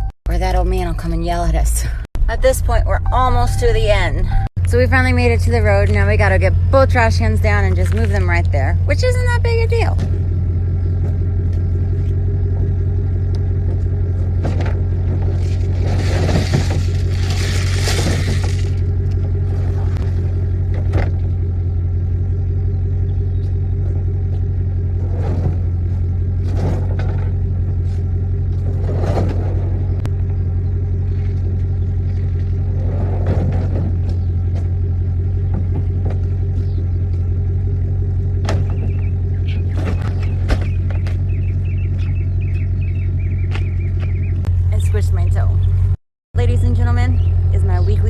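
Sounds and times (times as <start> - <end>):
truck engine humming: 0.0 - 48.0
knocks and clunks: 9.8 - 21.7, 23.3 - 30.4, 31.2 - 37.3, 38.2 - 44.6.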